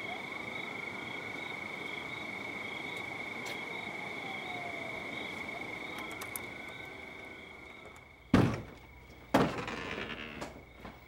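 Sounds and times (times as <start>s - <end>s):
high-pitched insect trill: 0.0s - 10.8s
loud heavy thunks: 8.3s - 9.7s.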